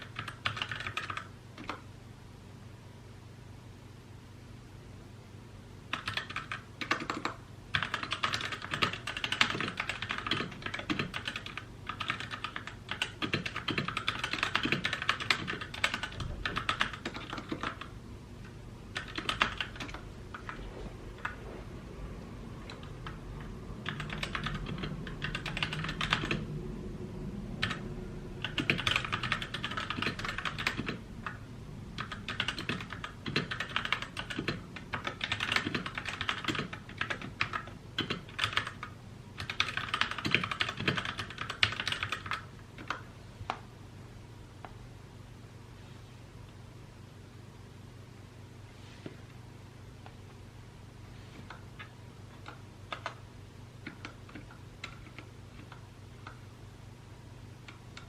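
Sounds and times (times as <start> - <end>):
mechanical keyboard typing: 0.0 - 1.8, 5.9 - 17.9, 18.9 - 21.4, 22.6 - 23.2, 23.8 - 26.5, 27.6 - 27.8, 28.4 - 31.4, 32.0 - 43.1, 51.4 - 53.2, 53.8 - 56.4.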